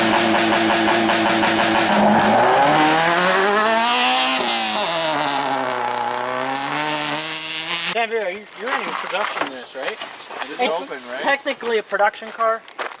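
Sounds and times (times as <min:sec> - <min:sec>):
rally car engine accelerating: 0:00.0 - 0:08.0.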